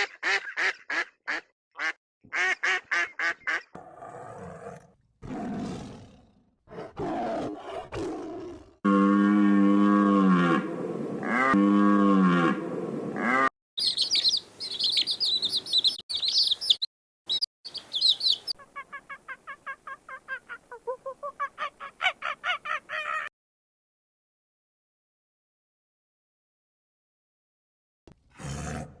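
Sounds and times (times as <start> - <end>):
high bird chirping: 13.8 - 18.9.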